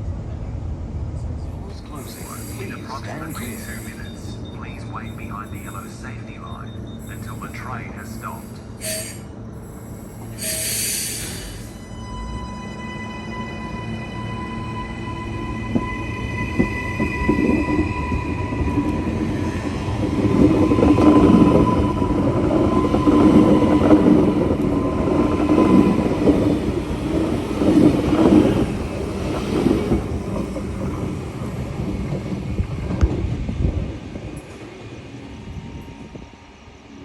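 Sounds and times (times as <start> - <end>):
steady high tone: 1.8 - 19.5
train wheels rumbling and clacking: 15.3 - 36.5.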